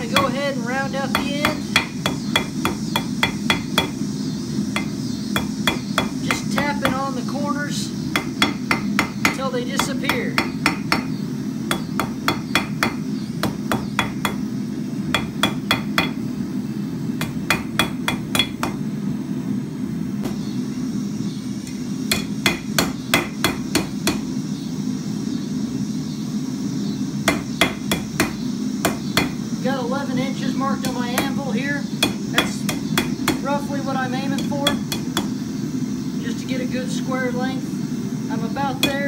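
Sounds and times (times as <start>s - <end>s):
steady low hum: 0.0s - 39.0s
hammer striking hot steel on anvil: 0.1s - 0.4s, 1.1s - 4.0s, 4.7s - 7.2s, 8.1s - 14.5s, 15.1s - 16.3s, 17.2s - 18.8s, 22.1s - 24.3s, 27.2s - 29.4s, 32.0s - 33.5s, 34.3s - 35.4s, 38.8s - 39.0s.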